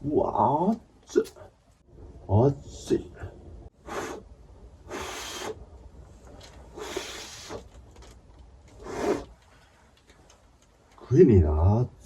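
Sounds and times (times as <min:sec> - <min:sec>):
man blowing breathy puffs: 0:03.8 - 0:05.6, 0:06.7 - 0:07.8, 0:08.8 - 0:09.4.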